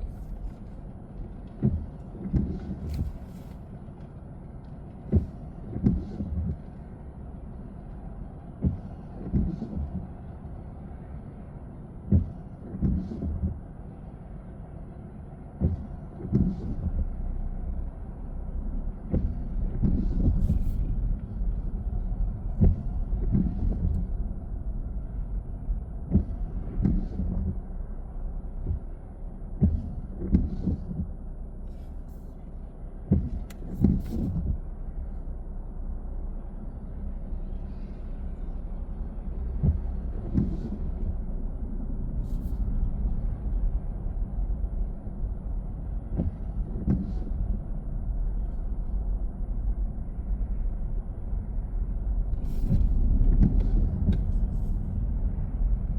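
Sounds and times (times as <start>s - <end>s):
car road and engine rumble: 0.0s - 55.9s
short thumps and knocks: 33.1s - 34.6s.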